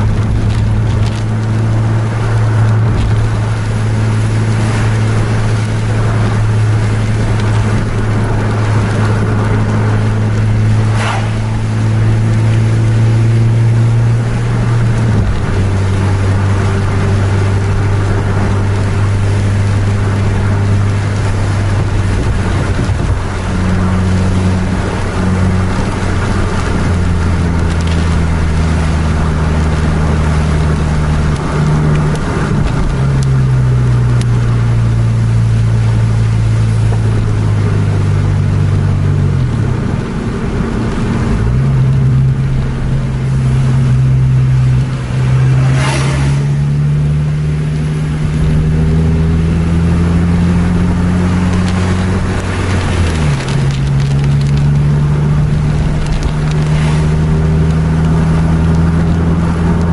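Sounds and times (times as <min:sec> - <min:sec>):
vehicle engine: 0:00.0 - 0:59.9
wet tyres hissing: 0:00.0 - 0:59.9
short swish: 0:10.3 - 0:13.2, 0:45.4 - 0:46.7.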